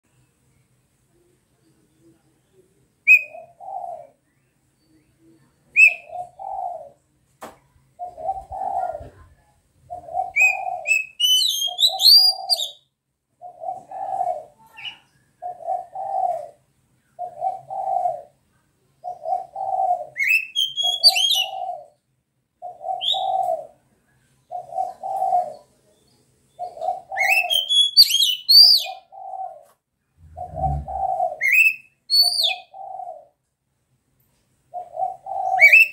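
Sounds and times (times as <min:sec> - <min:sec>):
dove cooing: 0:03.1 - 0:04.2, 0:05.8 - 0:07.0, 0:08.0 - 0:12.8, 0:13.4 - 0:16.6, 0:17.2 - 0:18.4, 0:19.0 - 0:22.0, 0:22.6 - 0:23.8, 0:24.5 - 0:25.8, 0:26.6 - 0:33.4, 0:34.7 - 0:35.9
bird whistles and chirps: 0:10.4 - 0:12.8, 0:20.2 - 0:21.6, 0:27.2 - 0:29.0, 0:30.2 - 0:32.7, 0:35.6 - 0:35.9.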